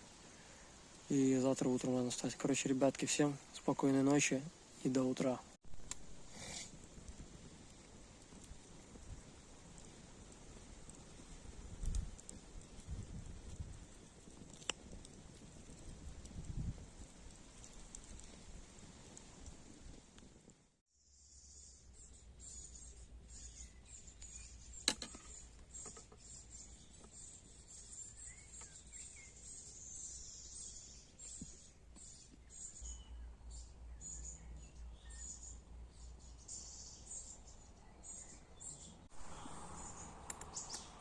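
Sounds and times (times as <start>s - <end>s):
wind rumbling: 5.8s - 20.4s, 38.6s - 41.0s
birds chirping: 21.5s - 41.0s.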